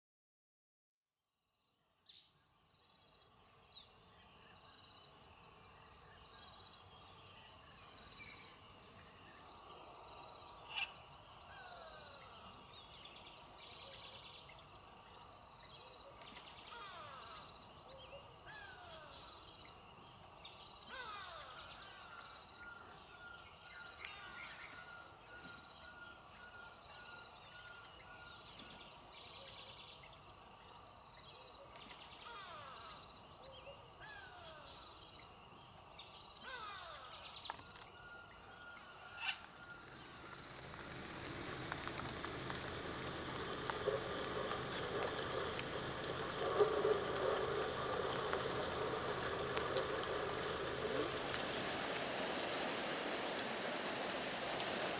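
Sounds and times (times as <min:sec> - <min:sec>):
high insect hiss: 0:02.6 - 0:54.9
fast insect trill: 0:03.2 - 0:13.7.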